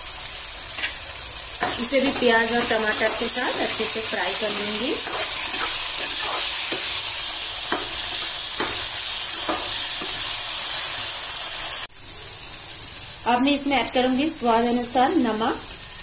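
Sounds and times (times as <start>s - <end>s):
vegetables frying in oil: 0.0s - 16.0s
spatula stirring and scraping: 1.6s - 10.4s.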